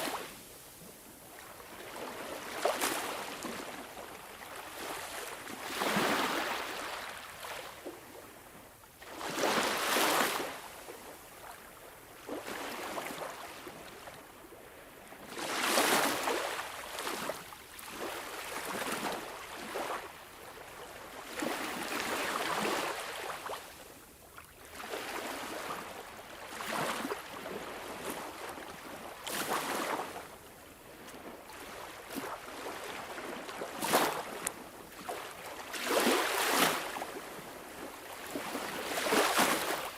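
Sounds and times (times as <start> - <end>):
sea waves breaking: 4.7 - 7.6, 31.0 - 39.9.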